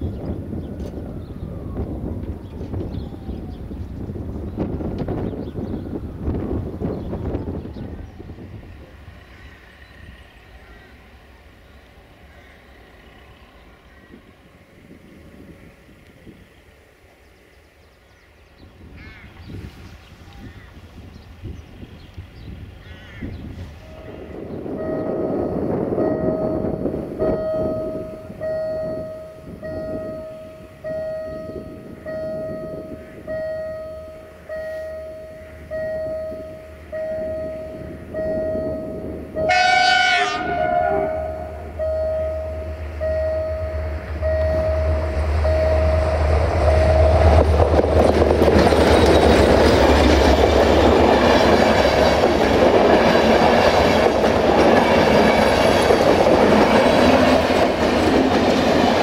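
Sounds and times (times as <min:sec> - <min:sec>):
diesel engine rumble: 0:00.0 - 0:17.2, 0:20.1 - 0:39.7, 0:40.3 - 0:59.0
wheels roaring on rail: 0:00.0 - 0:59.0
level crossing bell ringing: 0:24.9 - 0:39.7, 0:41.2 - 0:47.1
locomotive horn blast: 0:33.8 - 0:47.6.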